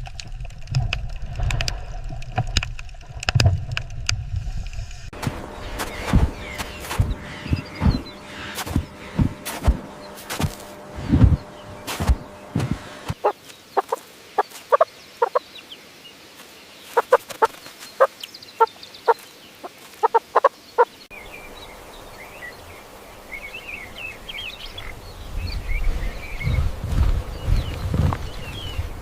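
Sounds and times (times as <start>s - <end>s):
low rumble: 0.0s - 13.2s
chicken clucking: 5.2s - 15.4s, 16.9s - 17.6s, 20.0s - 20.5s
chicks peeping: 5.2s - 15.5s, 16.9s - 19.2s, 20.0s - 20.5s.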